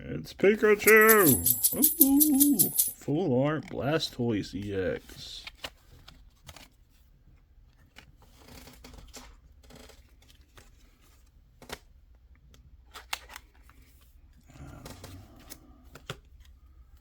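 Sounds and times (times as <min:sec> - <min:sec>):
trading cards clicking and tapping: 0:00.7 - 0:03.0.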